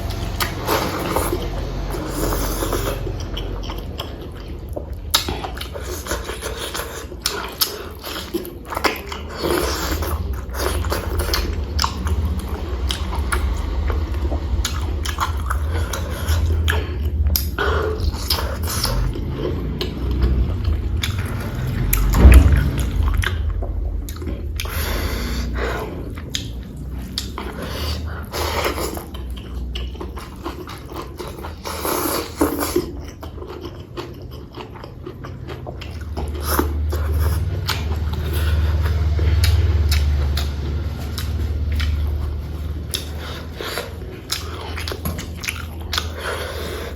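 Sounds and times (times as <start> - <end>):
chewing and mouth sounds: 0.0 - 46.9
low steady hum: 0.0 - 46.9.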